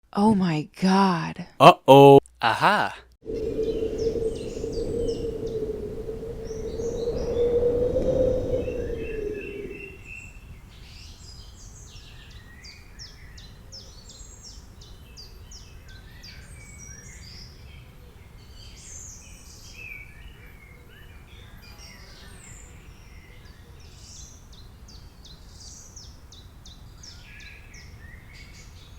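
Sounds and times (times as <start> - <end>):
low rumble: 3.3 - 10.0
songbirds chirping: 3.3 - 10.2.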